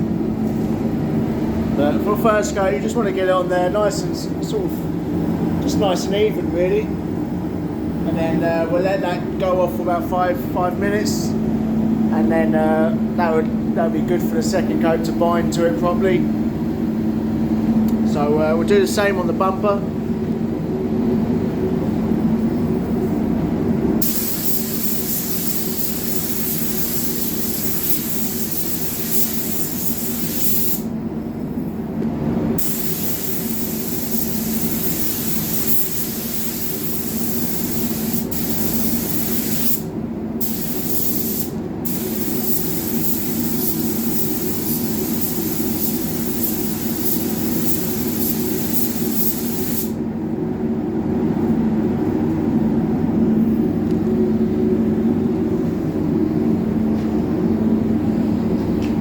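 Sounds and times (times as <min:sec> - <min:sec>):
steady low hum: 0:00.0 - 0:59.0
spray gun hissing: 0:24.0 - 0:30.9, 0:32.6 - 0:50.0.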